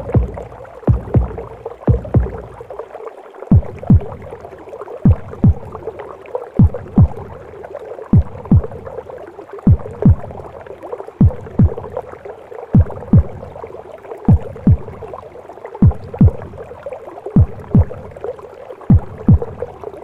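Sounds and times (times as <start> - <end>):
heartbeat thumps: 0.0 - 2.8, 3.5 - 4.3, 5.0 - 5.9, 6.6 - 7.4, 8.1 - 9.0, 9.7 - 10.5, 11.2 - 12.0, 12.8 - 13.5, 14.3 - 15.2, 15.8 - 16.6, 17.4 - 18.2, 18.9 - 19.8
soft music: 0.0 - 2.8.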